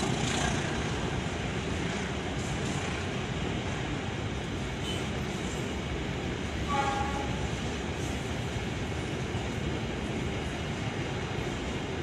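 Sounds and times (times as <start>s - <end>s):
train carriages rumbling past: 0.0s - 12.0s
train horn toot: 6.6s - 7.5s.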